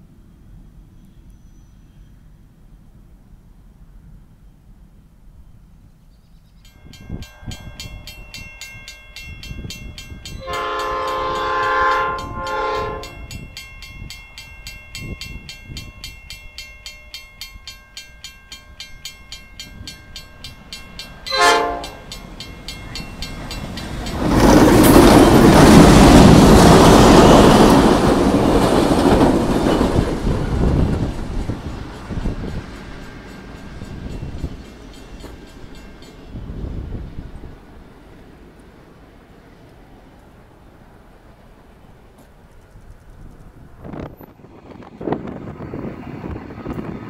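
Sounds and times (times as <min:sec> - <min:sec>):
train engine and wheel noise: 0:00.0 - 0:47.0
locomotive horn blasts: 0:10.4 - 0:13.3, 0:21.3 - 0:22.1.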